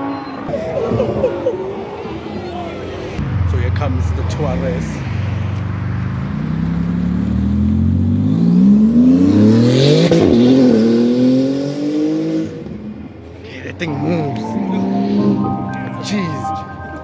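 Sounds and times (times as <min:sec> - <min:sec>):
car accelerating hard: 0:05.8 - 0:12.8.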